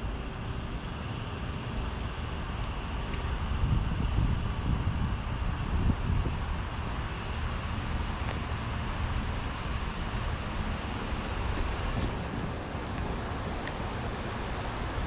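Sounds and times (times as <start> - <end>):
wind rumbling on microphone: 0.0 - 15.0
rain hissing: 7.5 - 15.0.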